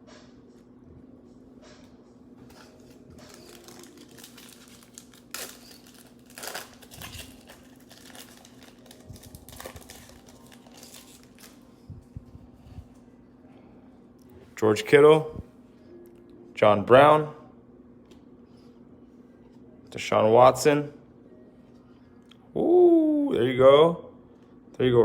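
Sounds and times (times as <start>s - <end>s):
card pack wrapper crinkling: 2.5s - 11.7s.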